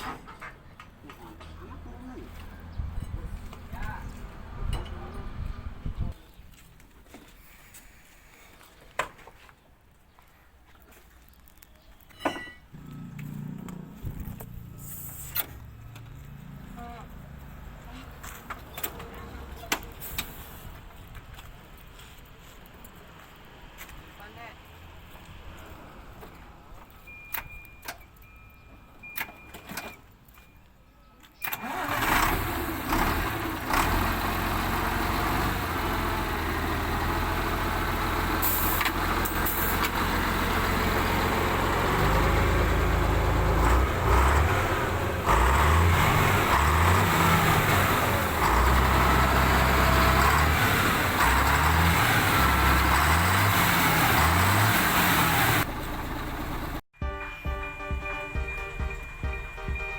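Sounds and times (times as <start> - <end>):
diesel truck engine revving: 31.5 - 56.8.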